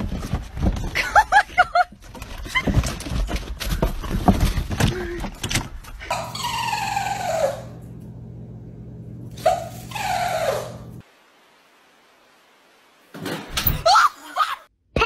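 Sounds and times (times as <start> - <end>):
clattering and knocking: 0.0 - 6.1
steady low hum: 6.2 - 9.9.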